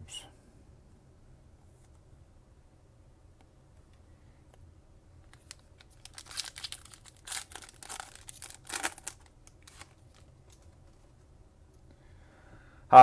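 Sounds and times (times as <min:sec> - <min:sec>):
plastic wrapper crinkling and ripping: 0:05.3 - 0:11.1.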